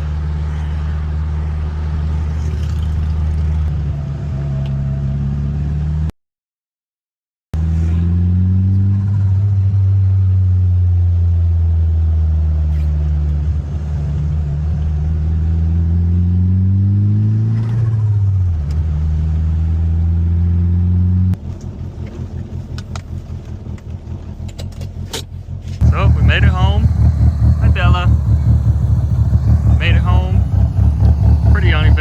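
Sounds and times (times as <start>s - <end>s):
car engine running: 21.4s - 32.0s.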